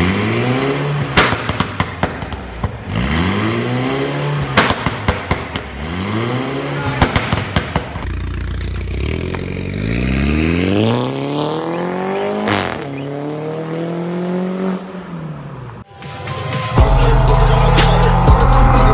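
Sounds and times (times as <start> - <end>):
exhaust crack: 0.0 - 10.8
car engine accelerating: 0.0 - 15.9.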